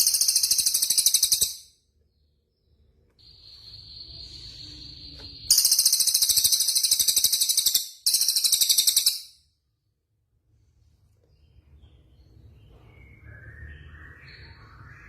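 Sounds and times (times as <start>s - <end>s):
songbird whistle and trills: 0.0s - 1.7s, 3.2s - 9.4s.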